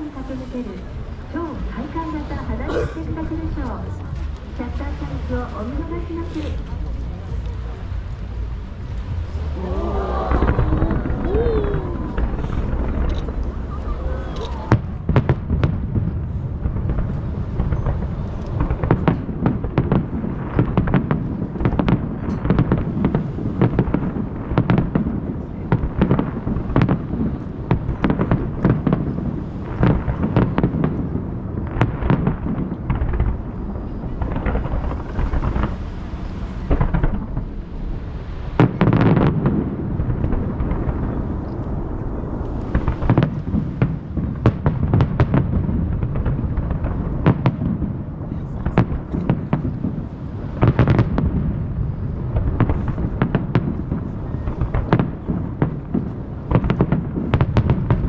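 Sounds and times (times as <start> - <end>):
deep echoing rumble: 0.0 - 18.8, 32.4 - 50.6
fireworks bursting: 6.9 - 58.0.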